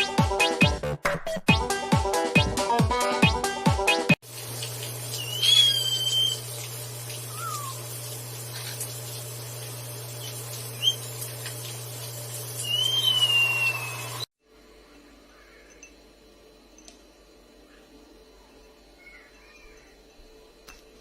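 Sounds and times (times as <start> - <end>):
parrot whistling: 5.2 - 6.5, 7.3 - 7.8, 10.8 - 11.1, 12.6 - 14.3
steady low hum: 14.4 - 21.0.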